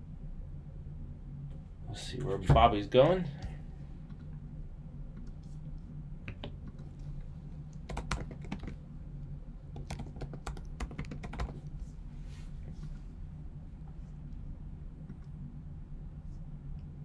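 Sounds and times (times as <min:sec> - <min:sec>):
low steady hum: 0:00.0 - 0:17.0
keyboard key clicks: 0:07.8 - 0:08.8, 0:09.8 - 0:11.6.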